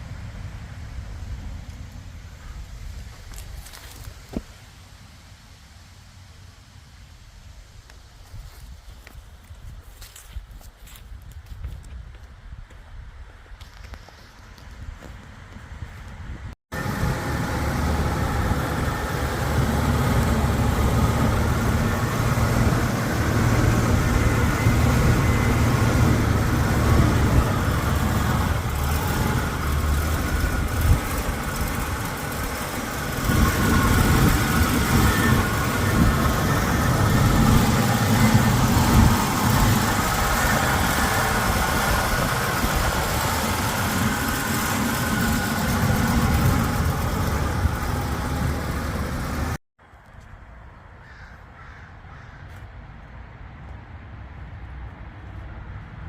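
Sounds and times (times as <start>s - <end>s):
car engine running: 16.8s - 49.6s.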